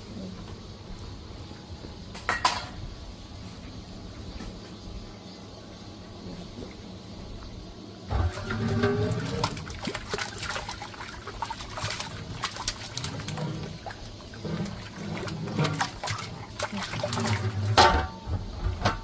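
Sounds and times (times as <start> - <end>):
ladle clinking: 8.1 - 18.3
broth pouring and splashing: 8.1 - 18.7.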